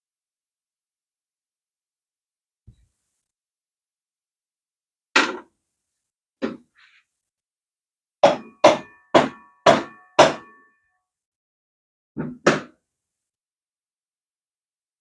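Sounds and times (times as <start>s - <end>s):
hammer striking metal axle: 8.2s - 10.7s.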